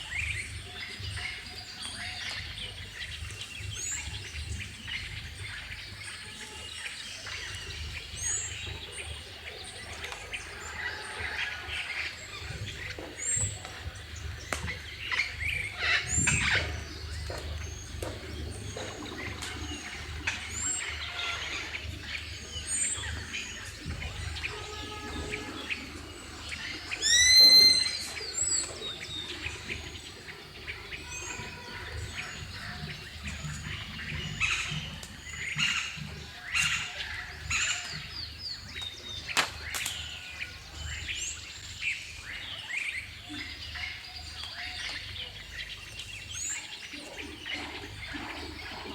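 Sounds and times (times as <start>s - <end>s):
birds chirping and singing: 0.0s - 48.9s
louder bird call: 24.2s - 28.8s.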